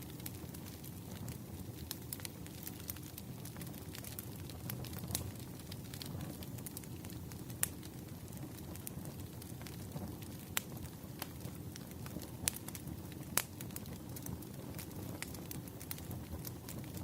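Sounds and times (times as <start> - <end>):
firewood crackling and popping: 0.0 - 17.0
wood fire burning: 0.0 - 17.0.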